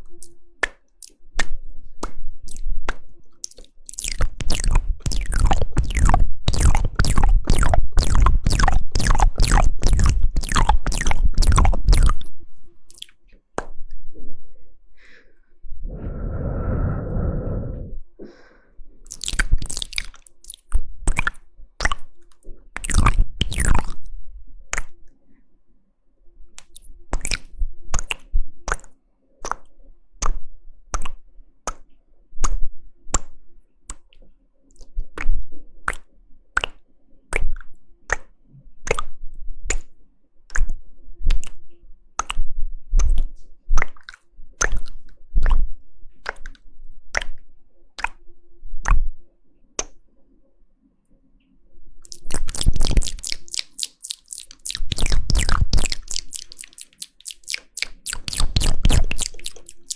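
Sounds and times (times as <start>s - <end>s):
wet mouth clicks and smacks: 0.0s - 13.9s, 19.0s - 25.1s, 26.6s - 47.4s, 48.0s - 49.1s, 49.8s - 50.0s, 52.0s - 59.9s
low muffled sound: 15.8s - 18.4s.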